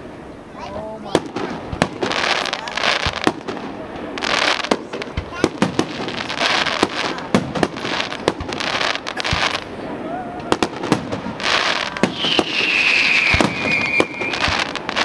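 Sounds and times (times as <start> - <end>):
fireworks bursting: 0.0 - 15.0
fireworks crackling: 0.0 - 15.0
high whistle gliding downward: 11.8 - 14.8.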